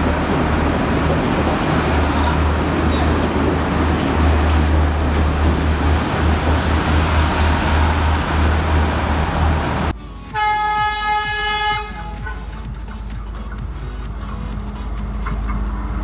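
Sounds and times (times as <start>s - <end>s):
train engine rumbling: 0.0s - 16.0s
train horn: 10.3s - 12.6s.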